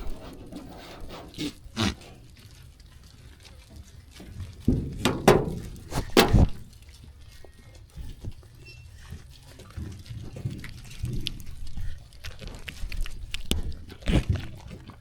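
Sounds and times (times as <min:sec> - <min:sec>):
sheep grazing: 0:00.0 - 0:08.2.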